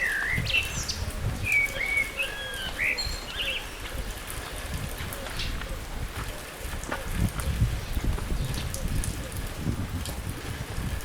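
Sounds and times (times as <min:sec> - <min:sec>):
bird whistling calls: 0:00.0 - 0:03.8
background noise: 0:00.0 - 0:11.0.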